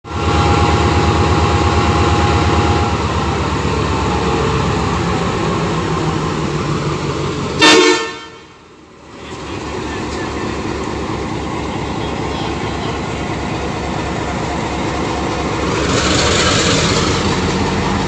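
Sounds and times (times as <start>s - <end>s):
locomotive diesel engine throbbing: 0.0s - 18.0s
locomotive horn blast: 0.1s - 3.3s, 7.6s - 8.6s.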